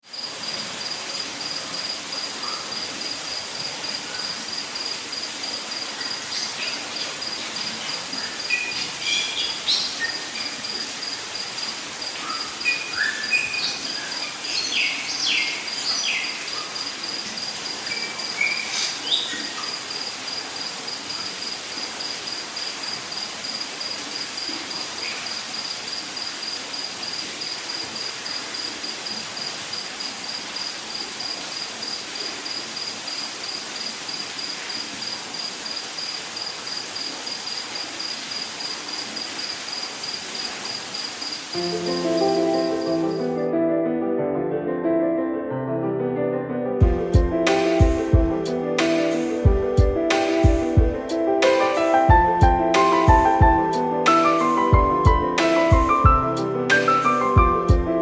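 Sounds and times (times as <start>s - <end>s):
insect trilling: 0.1s - 43.3s
birds chirping and whistling: 8.2s - 10.6s, 12.2s - 16.8s, 17.8s - 19.8s.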